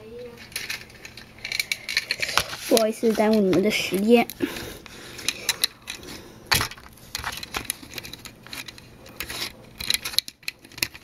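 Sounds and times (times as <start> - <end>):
plastic toy parts clicking: 0.4 - 2.5, 5.3 - 11.0.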